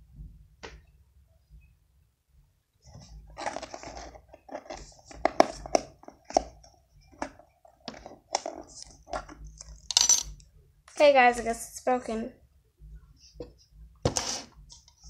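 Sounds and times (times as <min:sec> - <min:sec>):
scraping and rustling: 0:02.8 - 0:10.2.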